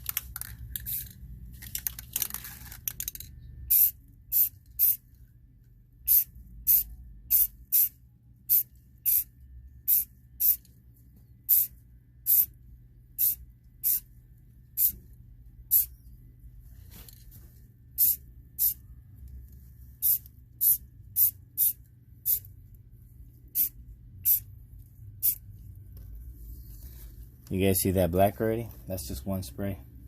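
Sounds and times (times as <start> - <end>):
spray paint can spurts: 0.0 - 5.0, 6.1 - 7.9, 8.5 - 9.3, 9.9 - 10.7, 18.0 - 18.8, 20.0 - 22.5, 23.5 - 24.4.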